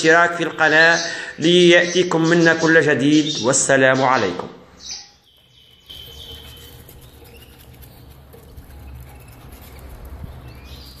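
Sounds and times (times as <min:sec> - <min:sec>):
finches calling: 0:00.0 - 0:08.1.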